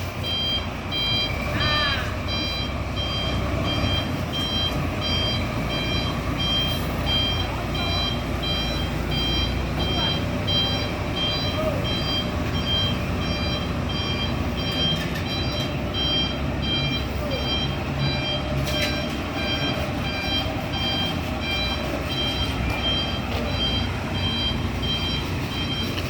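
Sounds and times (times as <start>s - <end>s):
low engine rumble: 0.0s - 26.0s
truck reversing alarm beeping: 0.0s - 26.0s.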